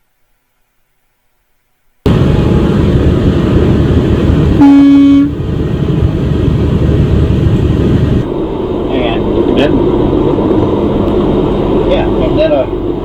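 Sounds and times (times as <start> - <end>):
vehicle road and engine rumble: 2.0 - 13.0
vehicle horn blast: 4.6 - 5.4.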